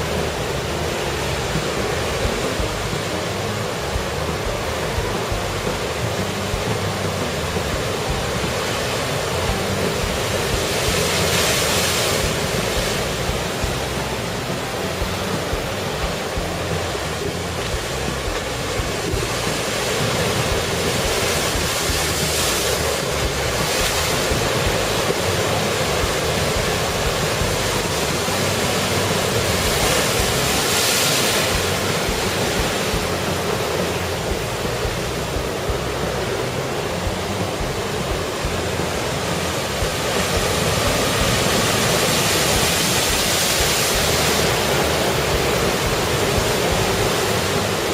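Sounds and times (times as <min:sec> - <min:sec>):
heavy surf crashing on shore: 0:00.0 - 0:47.9
steady wind: 0:00.0 - 0:47.9.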